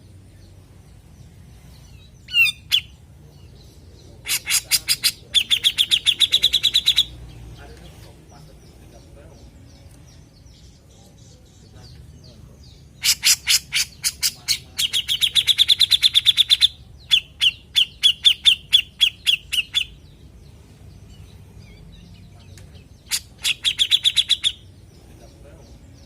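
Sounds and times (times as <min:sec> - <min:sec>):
bird calling notes and trill: 0:00.0 - 0:26.0.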